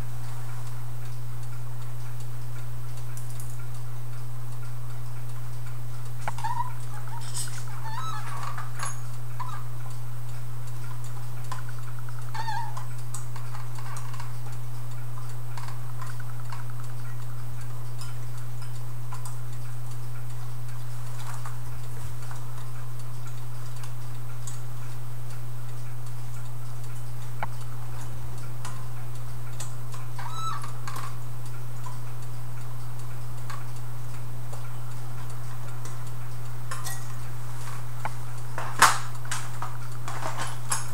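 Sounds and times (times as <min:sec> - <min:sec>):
short squeaks: 0:06.3 - 0:09.6, 0:12.3 - 0:12.9.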